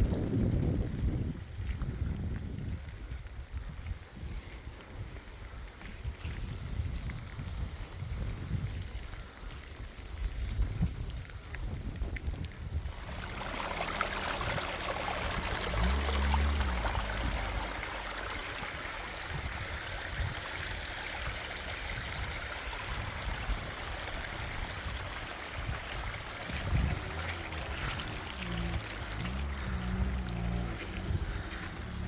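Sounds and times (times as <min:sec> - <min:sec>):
low rumble: 0:12.8 - 0:24.8, 0:25.6 - 0:32.0
heavy rain pouring: 0:12.9 - 0:32.0.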